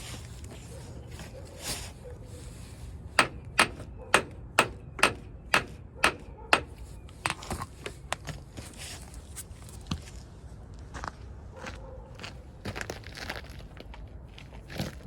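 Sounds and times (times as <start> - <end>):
hammer blows: 3.2 - 7.4.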